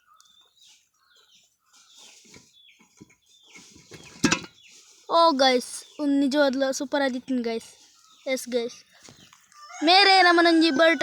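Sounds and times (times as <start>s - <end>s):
faint bird chirps: 0.0s - 11.0s
metal trap clanking shut: 4.2s - 4.5s.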